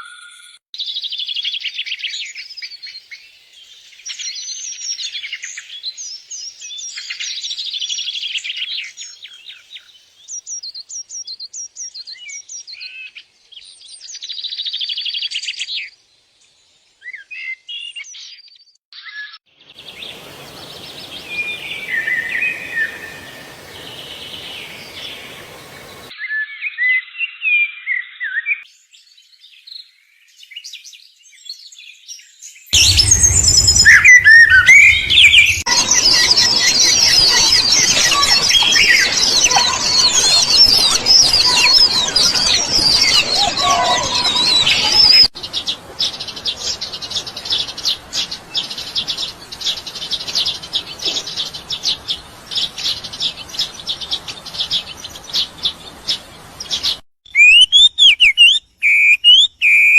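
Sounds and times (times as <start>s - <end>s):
birds chirping: 19.8s - 26.1s, 32.8s - 59.9s.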